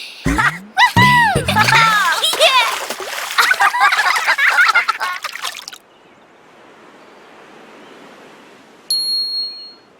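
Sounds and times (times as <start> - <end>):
cartoon music with voices: 0.0 - 2.7.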